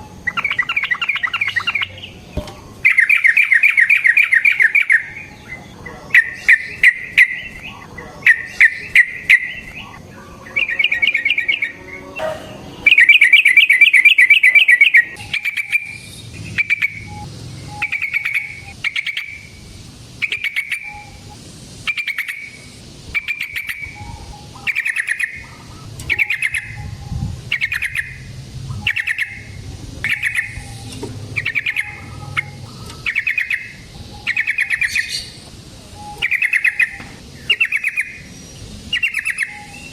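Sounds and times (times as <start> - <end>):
bird bubbly calls: 0.0 - 2.2, 2.8 - 35.4, 36.0 - 39.9
bird rattling call: 10.6 - 26.8, 27.5 - 35.4.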